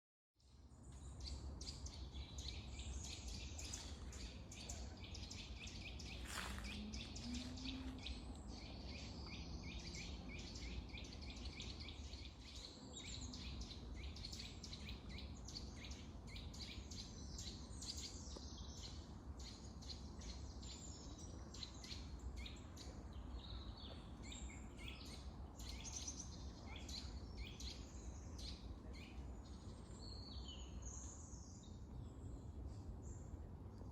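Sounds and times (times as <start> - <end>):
songbirds singing and chirping: 0.4 - 33.9
steady low rumble: 2.2 - 11.2.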